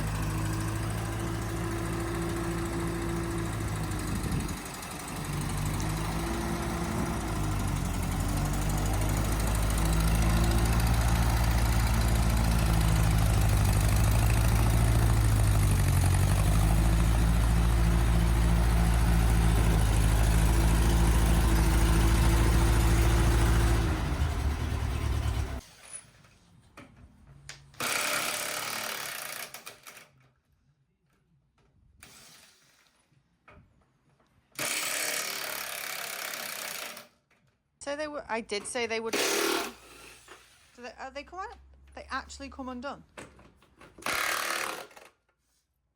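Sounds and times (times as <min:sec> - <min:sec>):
tractor engine running: 0:00.0 - 0:25.6.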